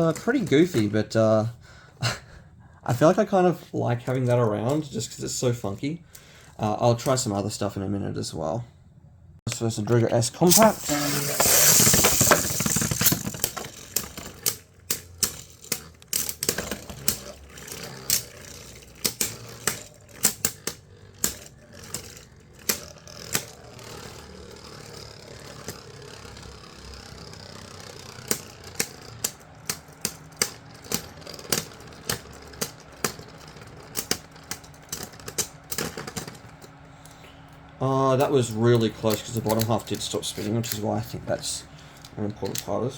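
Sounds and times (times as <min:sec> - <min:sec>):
spinning tops launched rush: 0:10.5 - 0:13.9
plastic clacks of colliding tops: 0:10.5 - 0:15.9.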